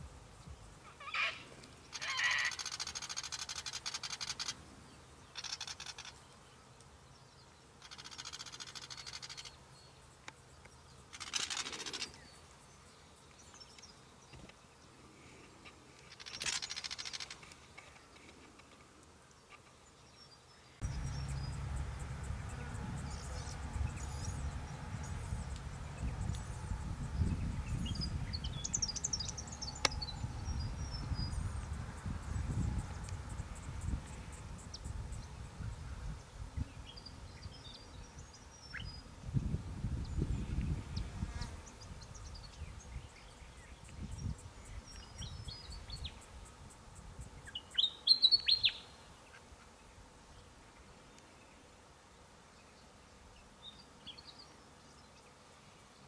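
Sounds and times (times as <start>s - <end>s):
bird chattering calls: 5.4s - 6.2s
wind rumble on microphone: 20.8s - 47.4s.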